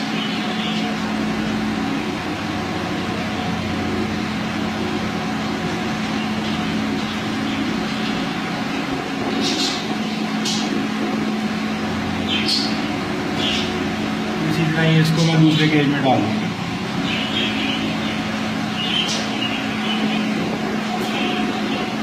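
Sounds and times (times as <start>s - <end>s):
steady motor hum: 0.0s - 22.0s.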